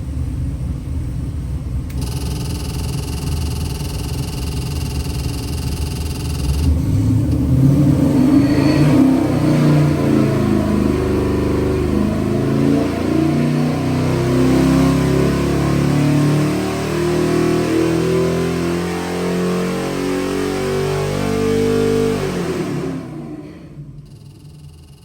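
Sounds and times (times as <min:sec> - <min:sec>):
engine revving on a dyno: 0:01.9 - 0:25.0.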